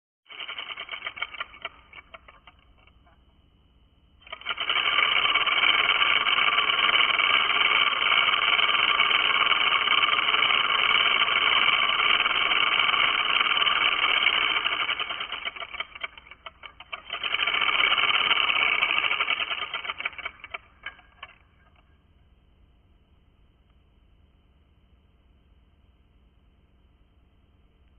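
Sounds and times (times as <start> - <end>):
tattoo machine buzzing: 4.2 - 16.2, 17.0 - 20.4.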